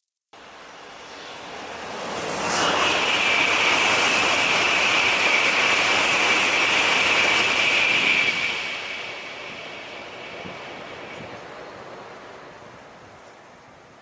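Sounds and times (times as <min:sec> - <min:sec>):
bullet train passing at high speed: 0:00.4 - 0:14.0.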